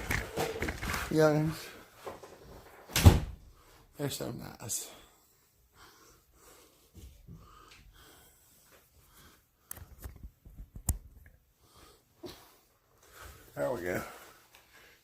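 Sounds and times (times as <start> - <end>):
faint rustling and handling: 0.0 - 2.9.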